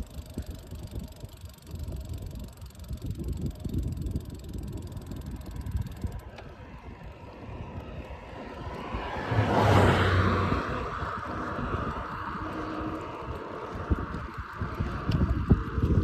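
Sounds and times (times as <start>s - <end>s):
wind buffeting microphone: 0.0s - 16.0s
vehicle passing close: 8.2s - 15.1s.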